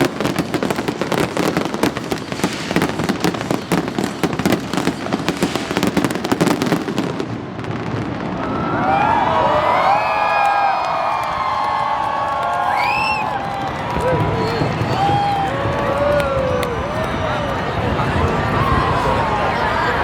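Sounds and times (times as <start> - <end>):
fireworks crackling and banging: 0.0 - 20.0
crowd cheering: 7.9 - 20.0
whoops and whistles: 12.5 - 16.8.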